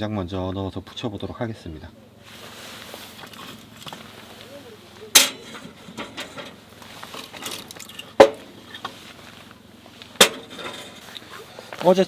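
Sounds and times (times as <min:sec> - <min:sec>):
light clicks and rustling: 0:02.4 - 0:12.0
wood knocking on steel stove: 0:05.1 - 0:06.6, 0:08.1 - 0:08.5, 0:10.2 - 0:11.0.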